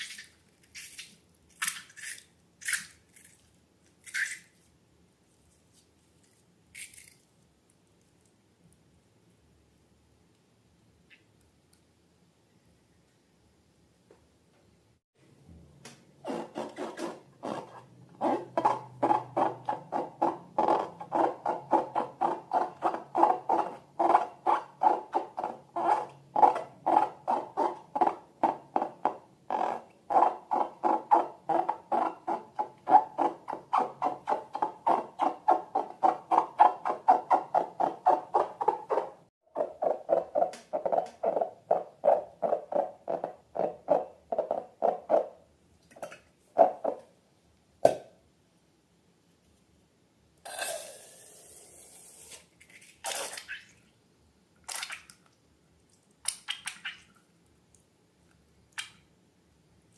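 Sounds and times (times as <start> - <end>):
rubber balloon squeaking: 16.2 - 45.3.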